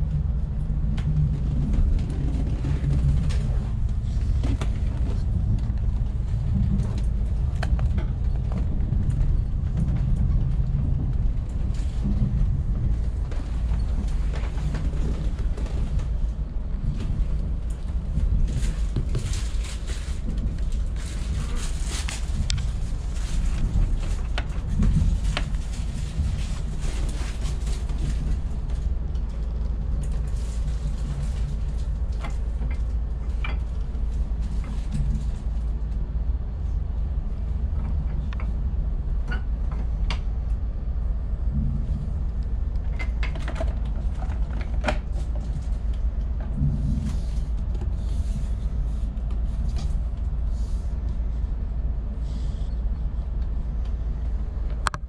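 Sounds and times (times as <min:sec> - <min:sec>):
train rumbling on track: 0:00.0 - 0:55.0.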